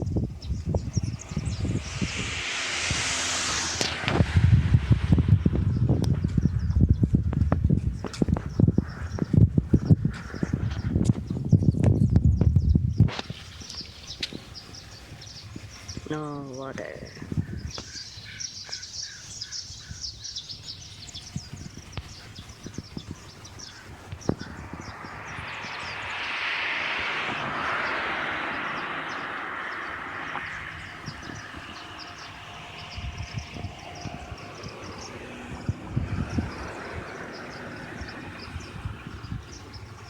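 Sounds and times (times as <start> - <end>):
small birds chirping: 0.0 - 4.0, 5.4 - 40.0
vehicle passing: 0.0 - 7.2, 22.8 - 40.0.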